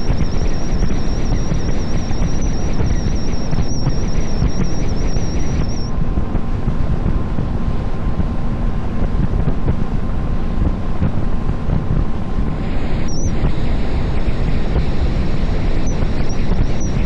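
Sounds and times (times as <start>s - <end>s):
boat motor drone: 0.0s - 17.0s
wind buffeting microphone: 5.9s - 12.6s.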